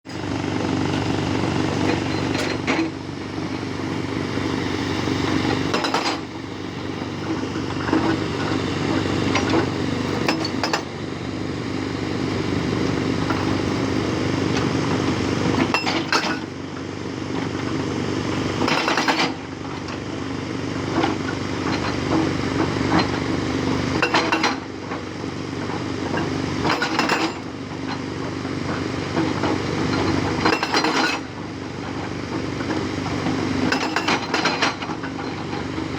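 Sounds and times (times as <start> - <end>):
hydraulic rock breaker hammering: 0.1 - 11.0, 12.6 - 16.6, 18.5 - 20.2, 20.8 - 35.9
diesel engine humming: 0.1 - 15.7.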